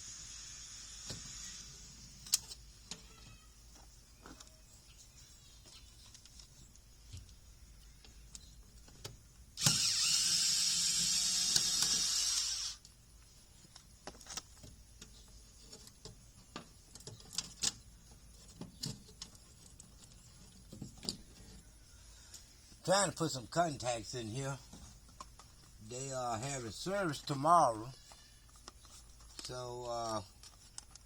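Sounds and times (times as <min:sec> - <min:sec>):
power drill running: 0:09.6 - 0:12.8.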